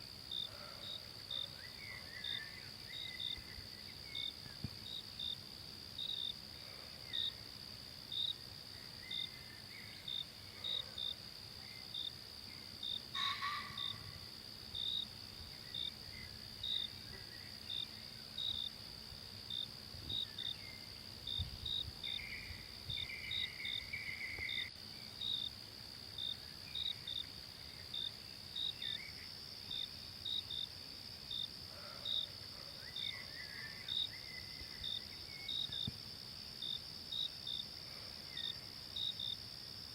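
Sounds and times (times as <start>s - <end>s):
insects trilling: 0.0s - 39.9s
short insect chirps: 8.1s - 18.8s, 19.5s - 25.6s, 32.1s - 36.0s.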